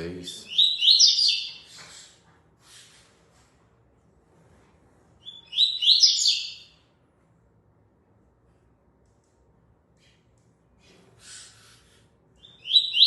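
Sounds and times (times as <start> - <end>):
bird singing high notes: 0.3 - 1.6, 5.2 - 6.7, 12.4 - 13.0.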